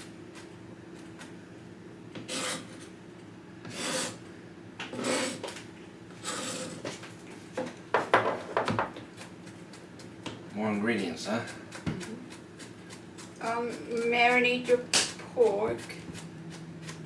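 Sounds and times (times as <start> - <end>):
scraping across cutting board: 2.2 - 2.8, 3.7 - 4.2, 4.9 - 5.6, 6.2 - 7.0
kitchenware clattering: 8.0 - 9.0.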